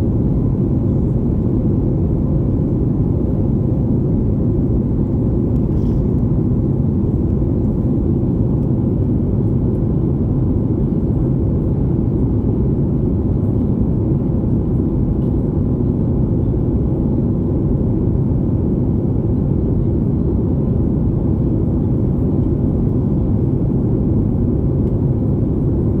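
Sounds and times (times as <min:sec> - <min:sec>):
faint steady hum: 0:00.0 - 0:09.0
jet engine rumble in cabin: 0:00.0 - 0:26.0.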